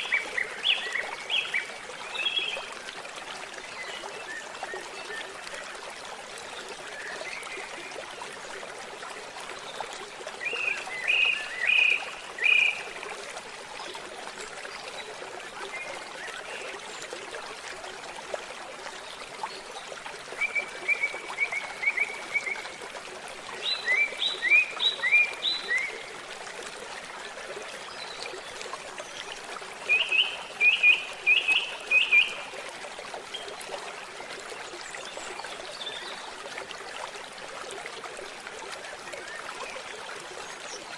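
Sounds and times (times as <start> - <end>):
babbling stream: 0.0 - 40.9
songbird singing: 23.6 - 26.0, 29.9 - 32.4.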